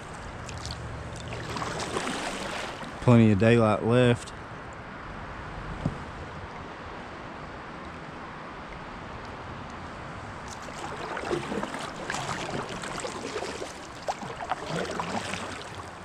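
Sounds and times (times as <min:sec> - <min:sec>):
water splashing: 0:00.0 - 0:03.1, 0:10.3 - 0:16.0
river water flowing: 0:00.0 - 0:05.5, 0:06.1 - 0:16.0.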